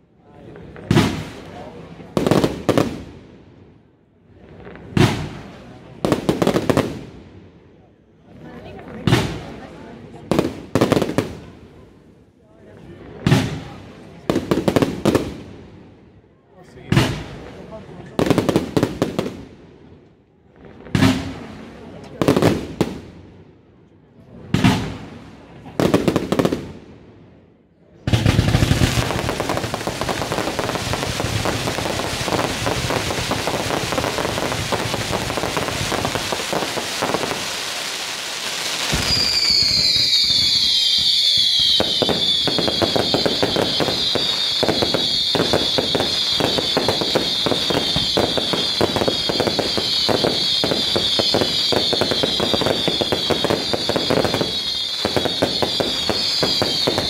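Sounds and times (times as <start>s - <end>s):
fireworks crackling and bangs: 0.0s - 23.5s, 24.2s - 57.0s
shrill firework whistle: 38.9s - 57.0s.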